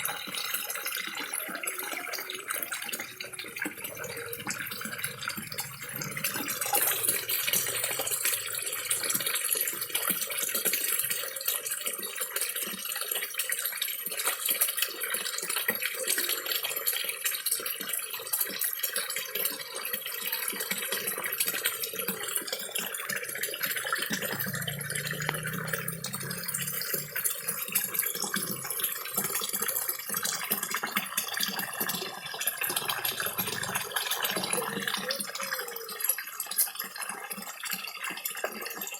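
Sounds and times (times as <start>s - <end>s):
fish slurping at water surface: 0.0s - 11.2s, 20.4s - 36.0s
small waterfall splashing into pond: 0.0s - 38.9s.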